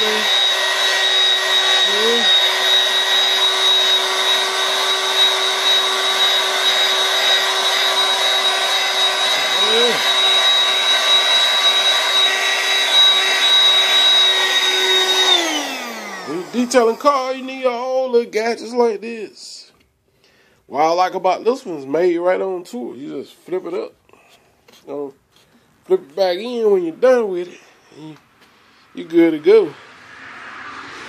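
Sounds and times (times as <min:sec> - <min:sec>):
vacuum cleaner motor whine: 0:00.0 - 0:18.2.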